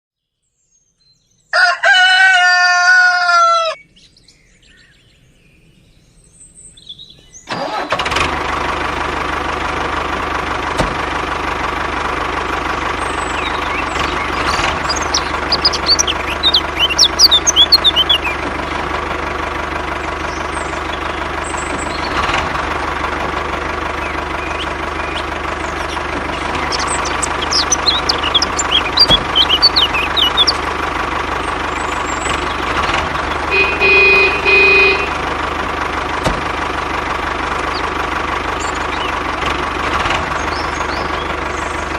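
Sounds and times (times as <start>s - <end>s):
birds chirping: 0.5s - 7.9s, 8.8s - 41.9s
engine running: 7.5s - 41.9s
loud horn-like tone: 33.5s - 35.2s.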